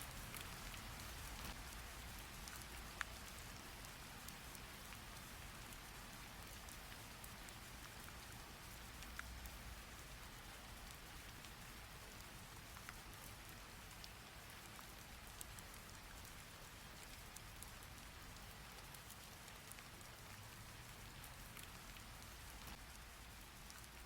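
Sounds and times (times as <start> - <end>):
steady rain falling: 0.0 - 24.0
single raindrop ticks: 0.1 - 3.6, 21.6 - 23.0.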